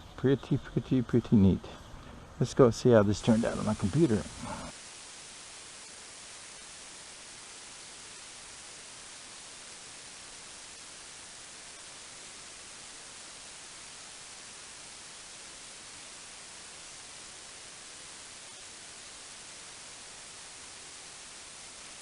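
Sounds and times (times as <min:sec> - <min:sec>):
electronic hiss: 0:00.0 - 0:22.0.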